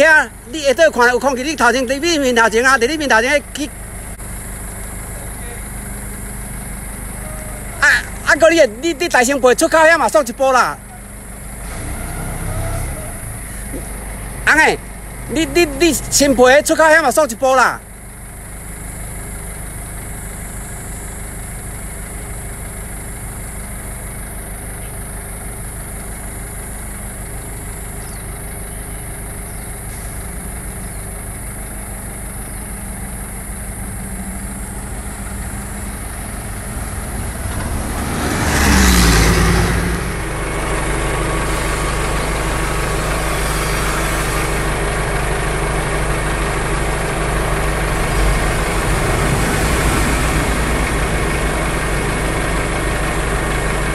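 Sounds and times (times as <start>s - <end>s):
power drill motor running: 41.2s - 45.9s.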